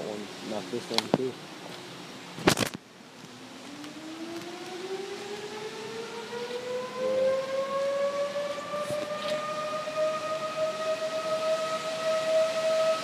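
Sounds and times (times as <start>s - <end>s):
warning siren winding up: 3.5s - 13.0s.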